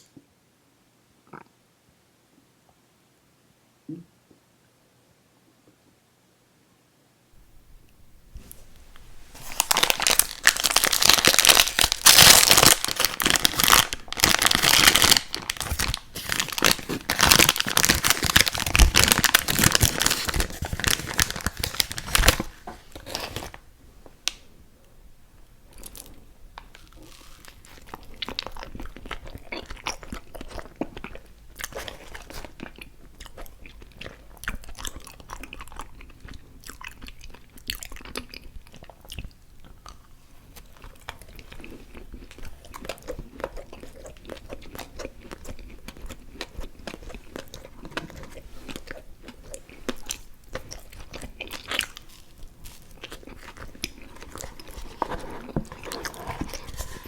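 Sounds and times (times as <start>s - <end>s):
chewing sticky candy: 9.4s - 21.7s, 25.6s - 57.0s.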